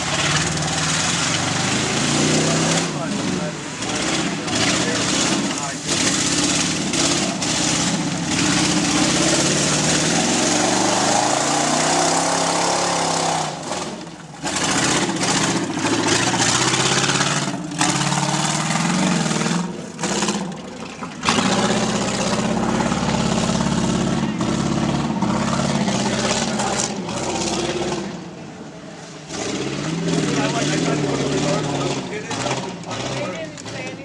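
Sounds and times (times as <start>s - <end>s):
truck engine revving: 0.0s - 34.0s.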